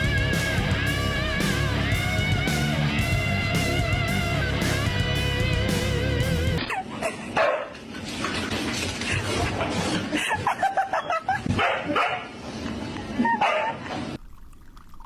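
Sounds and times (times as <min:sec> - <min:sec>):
dog barking and yipping: 0:06.7 - 0:07.8, 0:11.5 - 0:12.3, 0:13.3 - 0:13.8.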